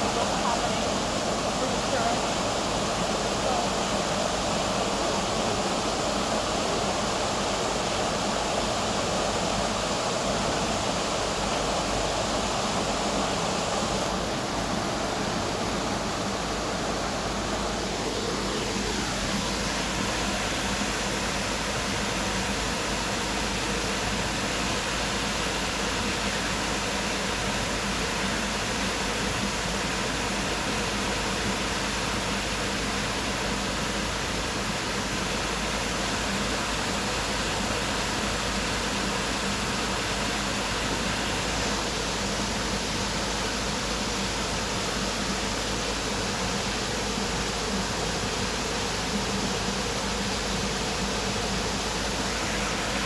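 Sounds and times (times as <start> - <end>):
waterfall rushing: 52.2 - 53.0.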